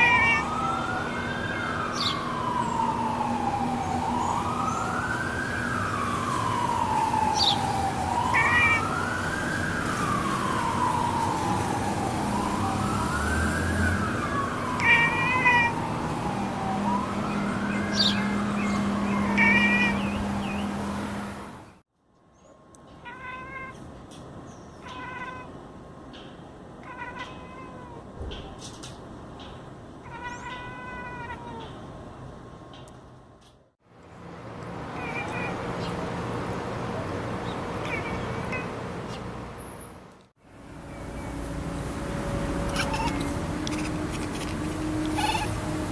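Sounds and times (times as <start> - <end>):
cat chirping: 0.0 - 0.5, 19.2 - 20.1, 35.0 - 36.0, 37.8 - 38.8, 42.5 - 45.6
siren wailing: 0.0 - 21.2, 41.3 - 45.9.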